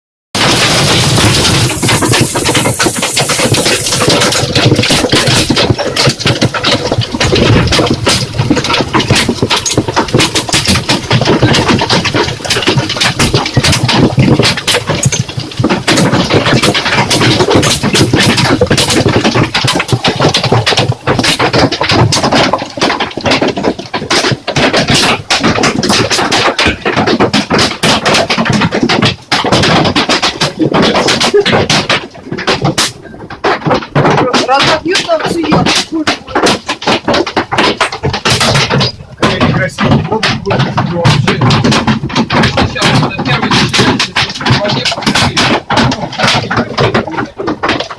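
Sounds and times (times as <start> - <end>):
steady rushing noise: 0.4 - 22.8
hailstones pelting down: 0.4 - 47.9.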